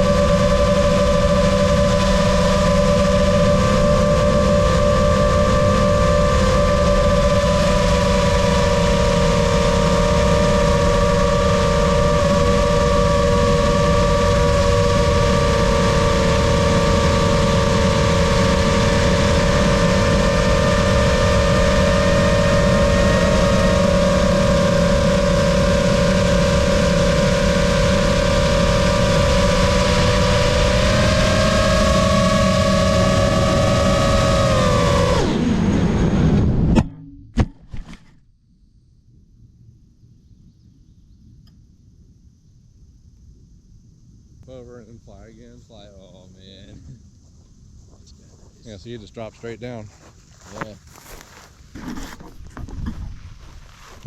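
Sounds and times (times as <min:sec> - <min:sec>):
drone propellers whining: 0:00.0 - 0:38.1.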